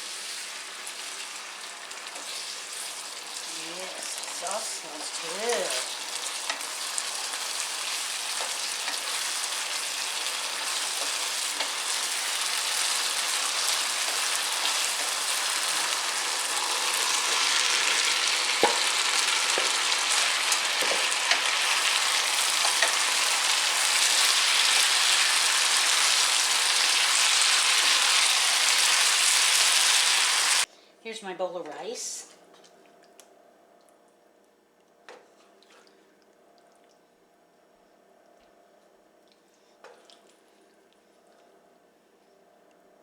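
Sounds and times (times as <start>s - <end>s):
stir fry sizzling in a pan: 0.0s - 30.7s.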